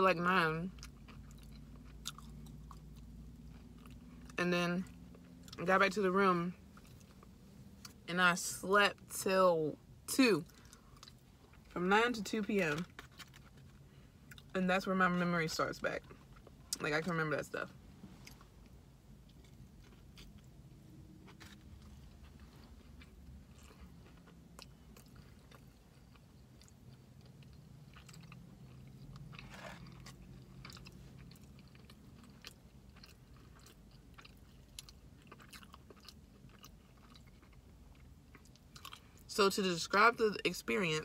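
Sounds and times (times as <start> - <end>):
person chewing and biting: 0.8 - 4.4, 18.2 - 20.6, 21.2 - 39.0.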